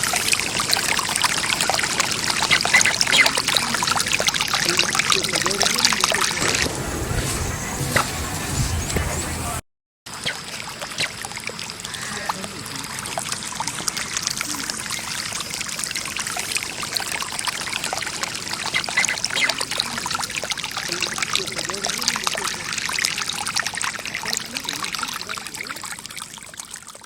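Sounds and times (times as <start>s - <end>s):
water trickling and pouring: 0.0s - 9.1s, 10.1s - 27.0s.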